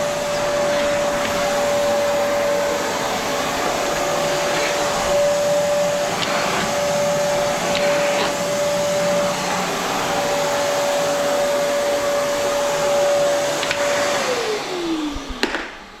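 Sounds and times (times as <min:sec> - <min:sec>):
vacuum cleaner whining: 0:00.0 - 0:16.0.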